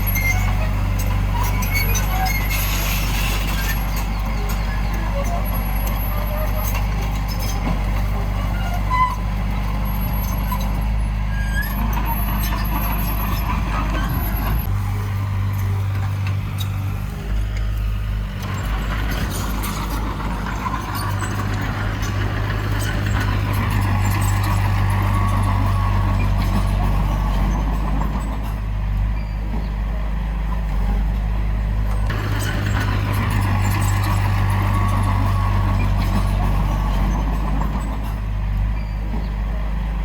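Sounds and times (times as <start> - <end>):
heavy diesel engine droning: 0.0 - 40.0.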